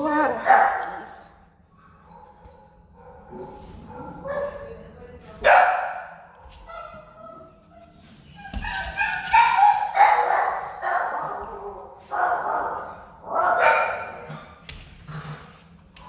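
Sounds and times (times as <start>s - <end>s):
dogs barking and yipping: 0.4s - 1.2s, 5.5s - 14.4s.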